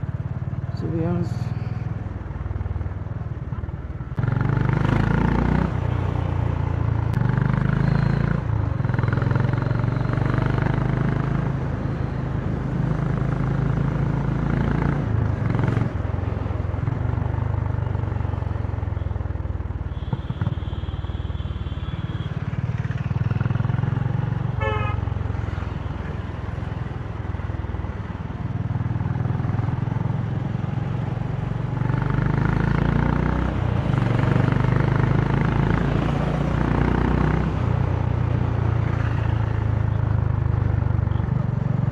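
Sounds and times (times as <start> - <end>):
vehicle horns: 19.9 - 22.5, 24.6 - 25.2.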